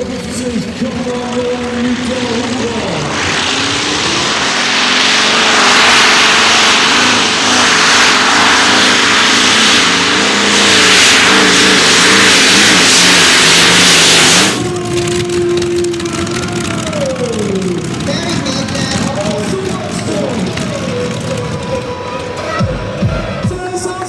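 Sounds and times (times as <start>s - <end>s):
tractor engine running flat out: 0.0s - 24.0s.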